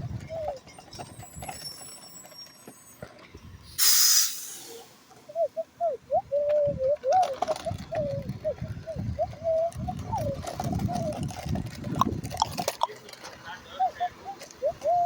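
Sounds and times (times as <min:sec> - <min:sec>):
air brakes hissing: 0:01.1 - 0:05.2.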